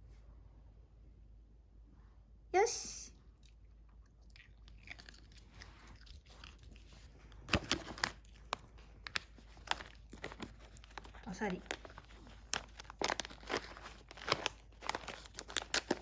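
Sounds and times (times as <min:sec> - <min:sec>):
dog chewing crunchy treat: 0:03.4 - 0:16.0.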